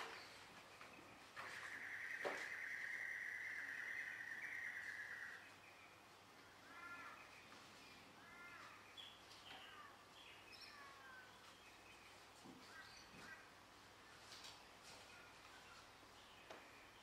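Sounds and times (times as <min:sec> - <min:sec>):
crow-like bird calls: 0:01.3 - 0:10.0.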